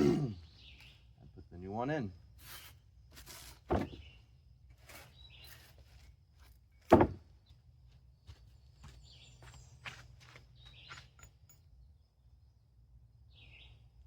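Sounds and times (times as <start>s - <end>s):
sharp knocks: 6.9s - 7.2s.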